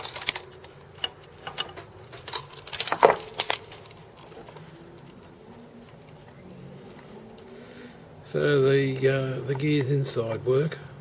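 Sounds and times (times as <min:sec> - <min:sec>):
metal parts clicking and clinking: 0:00.0 - 0:06.2.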